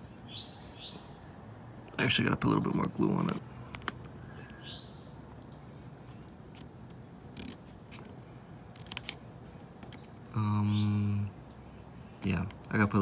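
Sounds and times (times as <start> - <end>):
hands handling clicks and scrapes: 6.0 - 10.2.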